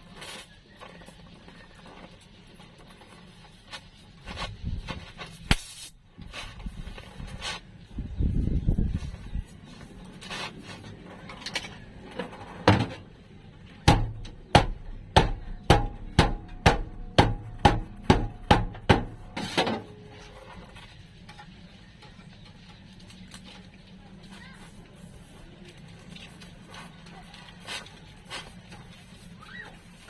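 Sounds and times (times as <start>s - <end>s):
hammer blows: 13.9s - 20.4s.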